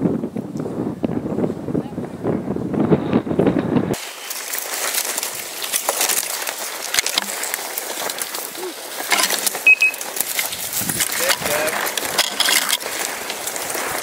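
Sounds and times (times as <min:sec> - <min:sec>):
dry vegetation rustling and crackling: 0:03.4 - 0:14.0.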